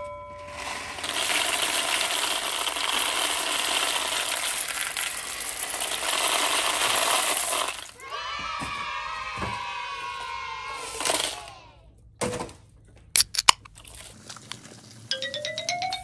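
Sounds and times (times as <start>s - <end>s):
dry pasta pouring clicks: 0.9s - 8.0s.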